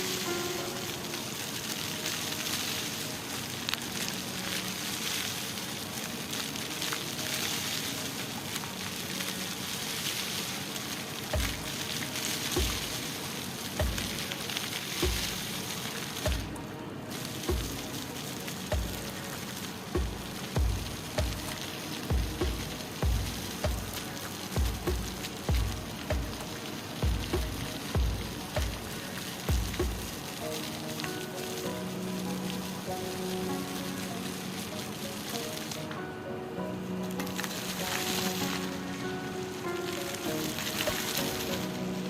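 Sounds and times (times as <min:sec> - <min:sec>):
fountain jets splashing: 0:00.0 - 0:42.0
rain: 0:00.0 - 0:42.0
low repeating thump: 0:11.4 - 0:11.6, 0:16.3 - 0:16.5, 0:20.0 - 0:21.4, 0:22.1 - 0:24.0, 0:24.6 - 0:26.4, 0:27.0 - 0:28.9, 0:29.5 - 0:30.1.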